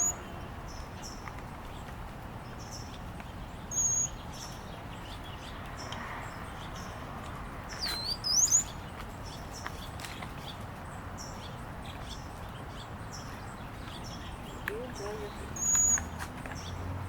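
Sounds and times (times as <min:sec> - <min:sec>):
sweeping bird call: 0:00.0 - 0:00.3, 0:03.7 - 0:04.6, 0:07.7 - 0:08.9, 0:14.0 - 0:16.8
small songbirds chirping: 0:00.0 - 0:17.0.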